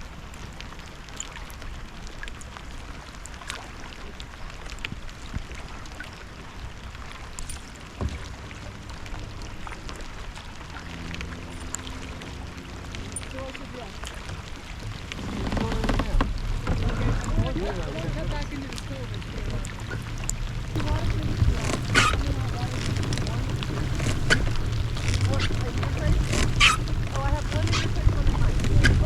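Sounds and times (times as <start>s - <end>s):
rain hissing on water: 0.0s - 29.0s
sharp raindrop ticks: 9.9s - 16.5s, 18.7s - 29.0s.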